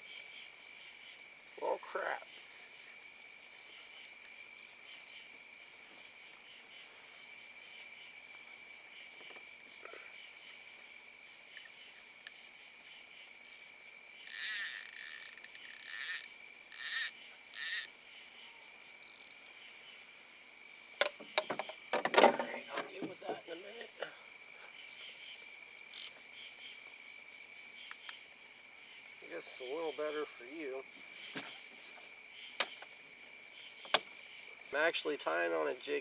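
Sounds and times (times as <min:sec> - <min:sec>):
crickets trilling: 0:00.0 - 0:36.0.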